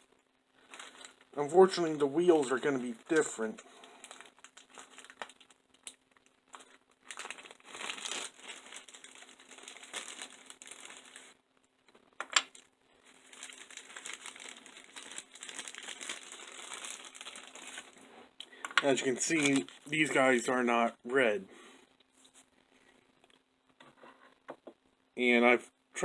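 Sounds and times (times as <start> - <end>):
packaging crinkling and rustling: 0.0 - 18.1, 18.8 - 20.5.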